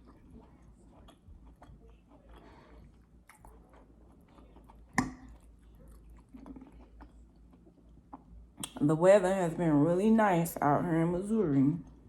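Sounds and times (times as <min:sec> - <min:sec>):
chewing food with wet clicks: 0:00.0 - 0:08.8, 0:11.8 - 0:12.0.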